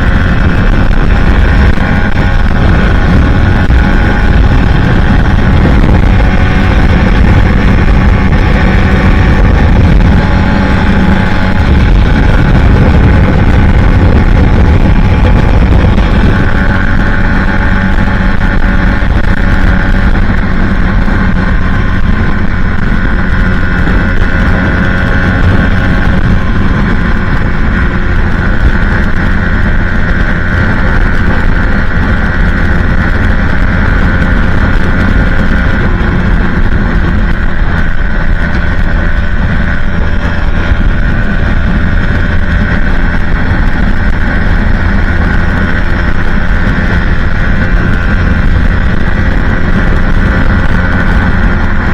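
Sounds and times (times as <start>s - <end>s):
motorcycle engine running: 0.0s - 51.9s
wind rushing on microphone: 0.0s - 51.9s.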